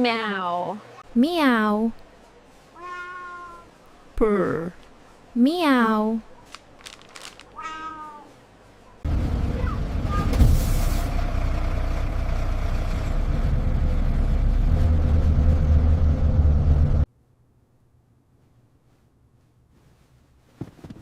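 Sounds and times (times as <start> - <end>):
bus engine and road rumble: 8.8 - 17.1.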